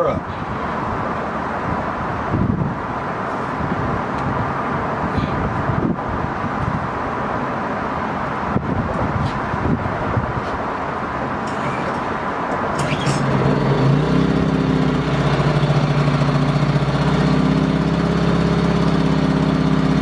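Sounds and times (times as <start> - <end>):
wind noise on microphone: 0.1 - 13.5
generator engine running: 11.2 - 20.0
short rattles: 11.5 - 14.0.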